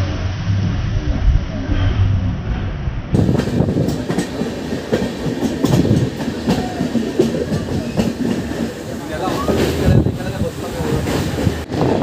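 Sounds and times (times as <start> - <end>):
train coach rattling: 3.1 - 12.0.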